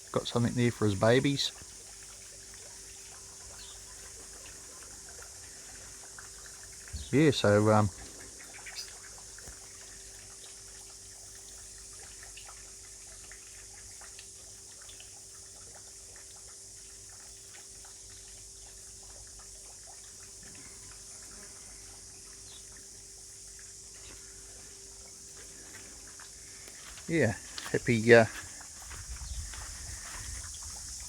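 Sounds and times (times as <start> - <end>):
faint steady hum: 0.0 - 31.0
water trickling and dripping: 0.0 - 31.0.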